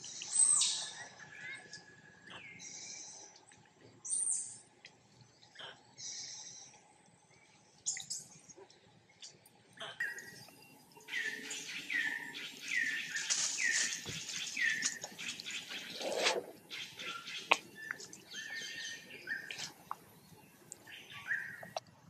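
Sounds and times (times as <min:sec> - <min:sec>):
bird chirps: 0:09.2 - 0:21.8.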